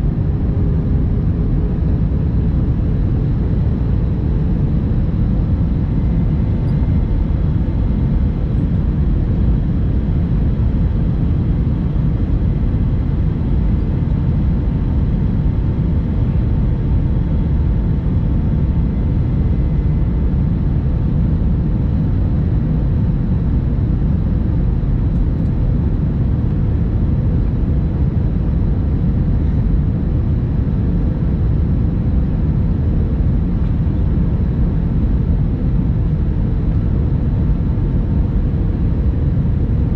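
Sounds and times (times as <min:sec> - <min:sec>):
faint engine tones: 0:00.0 - 0:27.6
aircraft cabin engine rumble: 0:00.0 - 0:39.9.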